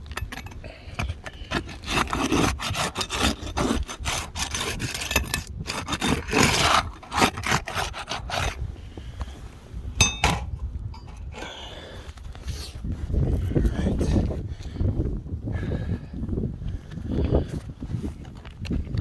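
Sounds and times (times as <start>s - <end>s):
scraping on roof shingles: 1.0s - 8.6s
short metallic clink: 10.0s - 11.2s.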